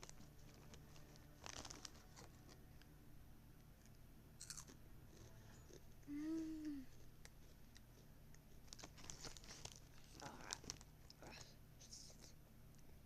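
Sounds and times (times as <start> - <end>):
chewing crunchy chips: 0.0 - 2.6, 3.8 - 5.9.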